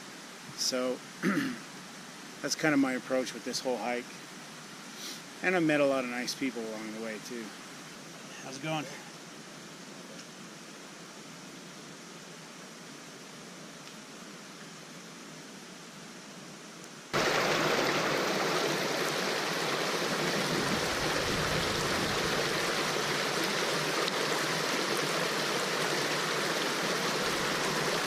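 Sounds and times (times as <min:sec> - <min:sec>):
mountain creek rushing: 0:00.0 - 0:10.7, 0:17.1 - 0:28.0
faint hiss: 0:00.0 - 0:28.0.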